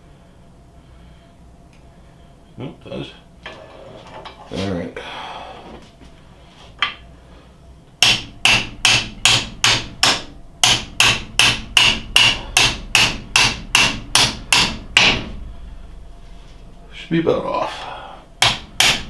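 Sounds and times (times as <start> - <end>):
hammer striking steel drift: 8.0 - 15.5, 18.4 - 19.0.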